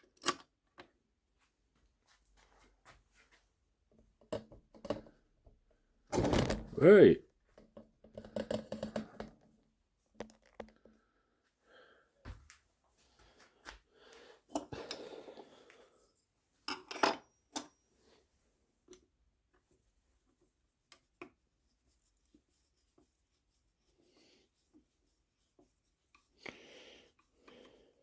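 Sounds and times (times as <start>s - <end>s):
parts clicking and knocking: 6.1s - 6.8s.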